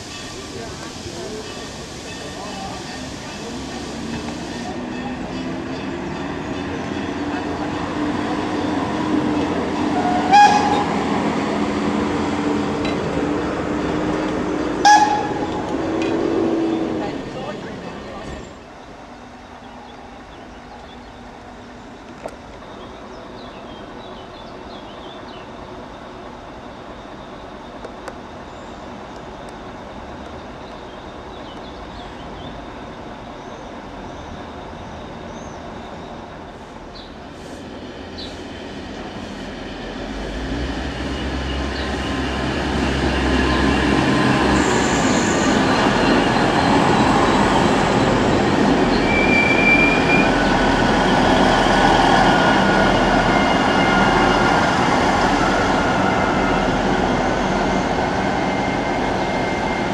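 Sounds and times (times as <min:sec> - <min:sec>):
train rumble: 0:00.0 - 0:59.9
high wheel squeals: 0:41.0 - 0:59.9.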